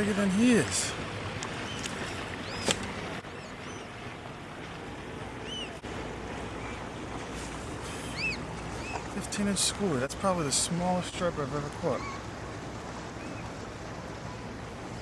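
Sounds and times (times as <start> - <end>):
water and wind washing: 0.0 - 15.0.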